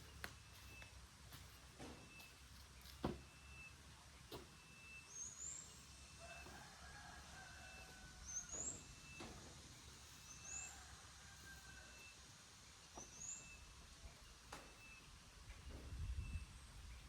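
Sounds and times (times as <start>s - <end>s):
bird chirping: 12.9s - 15.1s.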